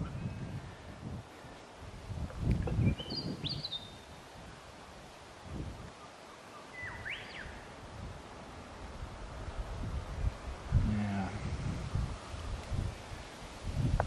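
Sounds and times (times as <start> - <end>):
bird whistling: 6.8 - 7.6.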